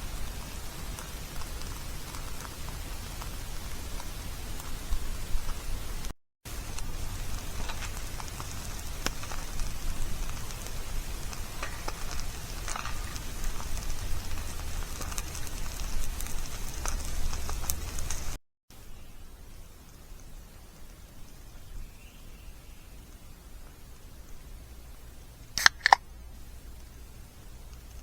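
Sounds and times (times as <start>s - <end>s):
campfire crackling and popping: 0.0s - 18.4s, 23.2s - 28.0s.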